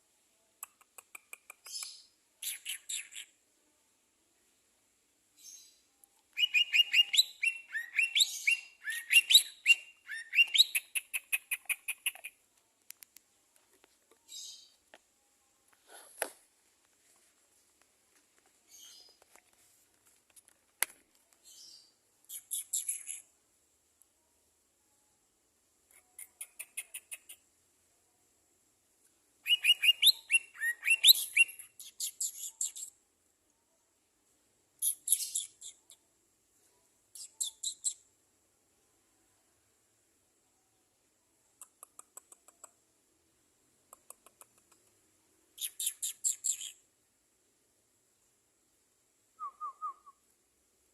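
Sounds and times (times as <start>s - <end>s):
faint clicks: 0.6s - 1.9s, 11.0s - 15.1s, 41.6s - 42.8s, 43.9s - 45.0s
songbird singing: 5.4s - 12.4s, 21.3s - 23.3s, 29.4s - 32.9s, 34.8s - 36.0s, 45.6s - 46.9s, 49.4s - 50.2s.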